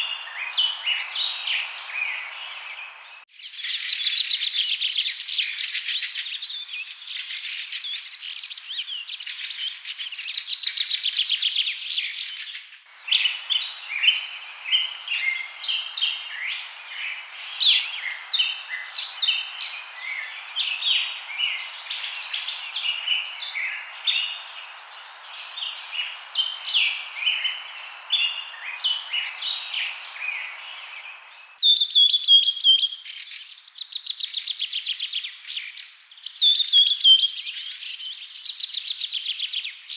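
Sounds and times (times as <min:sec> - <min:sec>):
songbirds chirping and singing: 0:00.0 - 0:39.9
steady hiss: 0:03.4 - 0:31.6.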